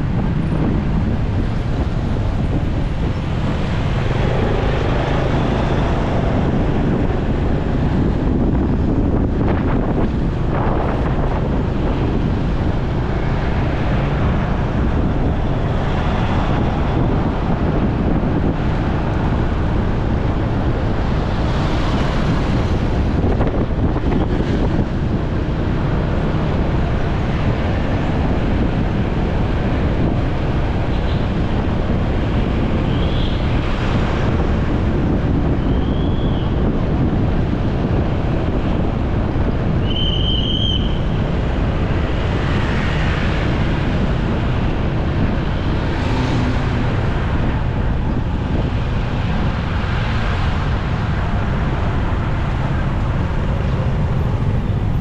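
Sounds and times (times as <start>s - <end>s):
motorcycle running: 0.0s - 35.7s
road noise: 0.0s - 55.0s
wind buffeting microphone: 0.0s - 55.0s.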